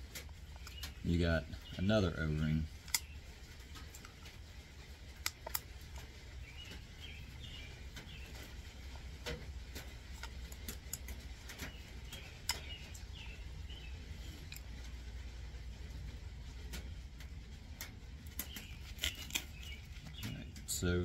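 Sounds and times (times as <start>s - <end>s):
steady low hum: 0.0s - 21.0s
light clicks of small metal parts: 14.2s - 15.0s.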